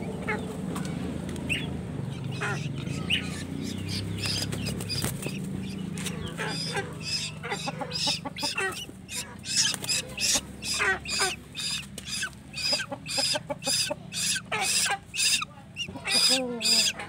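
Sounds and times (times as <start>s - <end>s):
young birds begging calls: 0.0s - 17.0s.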